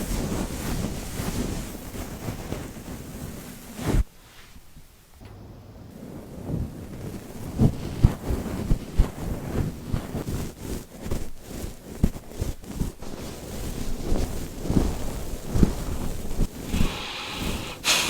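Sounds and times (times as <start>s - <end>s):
soft low bumps: 5.1s - 8.1s
dog sniffing: 16.7s - 18.0s.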